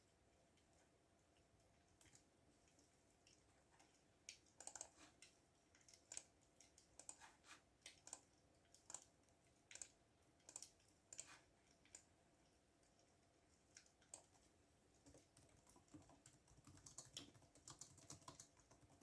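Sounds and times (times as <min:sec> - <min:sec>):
keyboard typing clicks: 0:04.3 - 0:05.0, 0:15.1 - 0:19.0.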